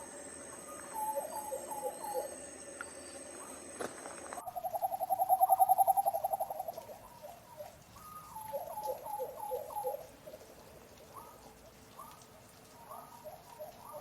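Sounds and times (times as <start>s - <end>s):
bird trilling: 0.0s - 7.2s.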